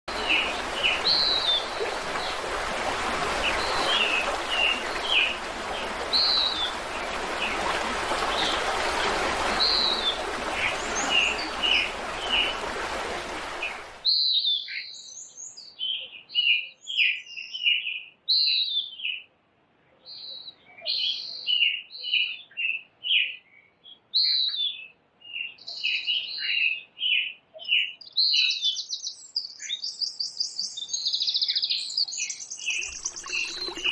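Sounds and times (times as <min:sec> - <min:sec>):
rushing water: 0:00.0 - 0:14.1, 0:32.6 - 0:33.9.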